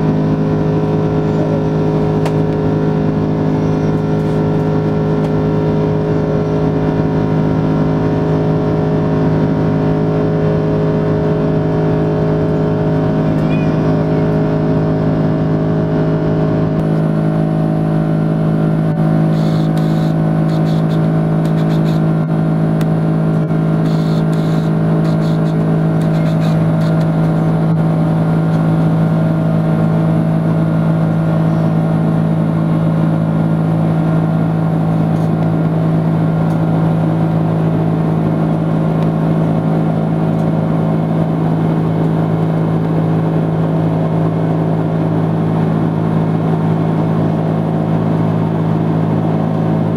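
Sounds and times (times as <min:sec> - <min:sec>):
jet engine cabin drone: 0:00.0 - 0:49.9.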